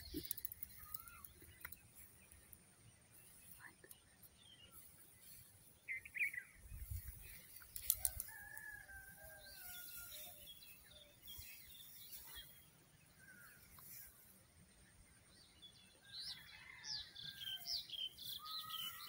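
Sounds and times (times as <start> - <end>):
sharp clicks: 0.0 - 1.9, 7.6 - 8.3
bird chirping and calling: 0.0 - 2.5, 3.2 - 8.3, 16.2 - 19.0.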